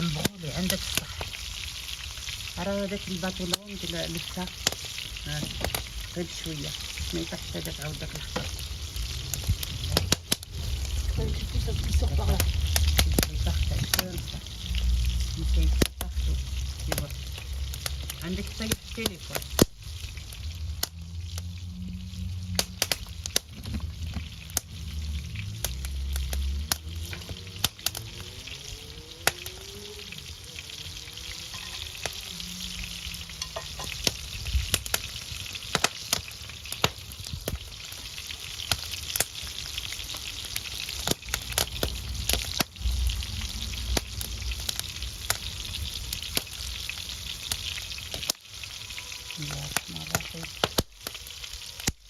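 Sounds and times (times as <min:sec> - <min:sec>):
food sizzling: 0:00.0 - 0:52.0
wood fire crackling: 0:00.0 - 0:52.0
low rumble: 0:05.2 - 0:18.6, 0:19.9 - 0:30.4, 0:31.2 - 0:35.5, 0:41.2 - 0:46.3.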